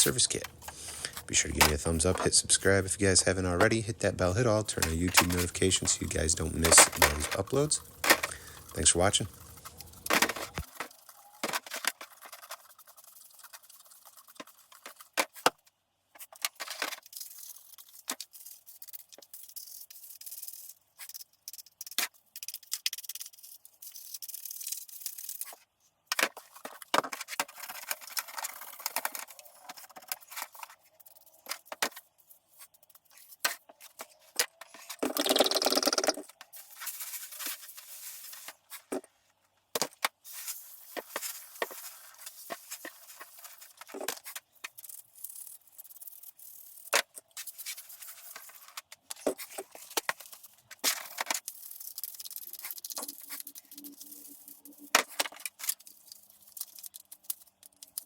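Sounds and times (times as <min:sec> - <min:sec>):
scrubbing and scraping chainsaw housing: 0:00.0 - 0:12.5.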